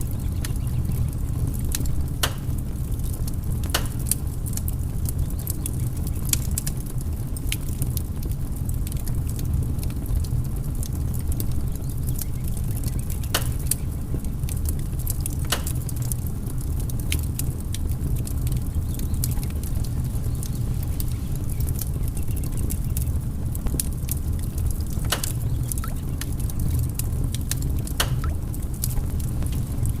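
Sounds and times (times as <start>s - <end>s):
fire pops: 0.0s - 30.0s
low rumble of flames: 0.0s - 30.0s
wood fire crackling: 0.0s - 30.0s.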